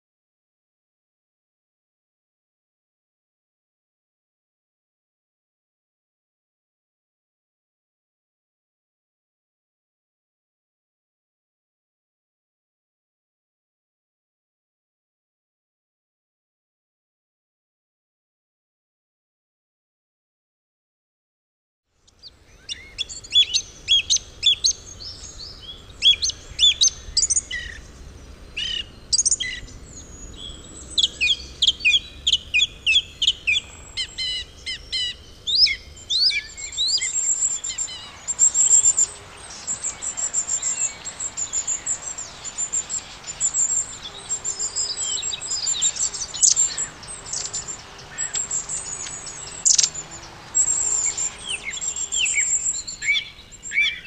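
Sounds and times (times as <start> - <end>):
birds chirping: 22.1 - 54.0.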